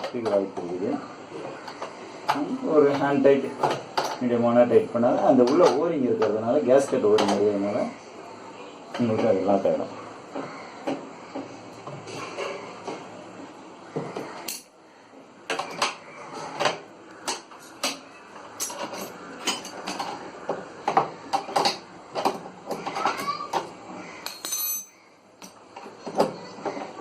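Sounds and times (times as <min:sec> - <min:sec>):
hand tools and screws clinking: 0:24.2 - 0:26.2.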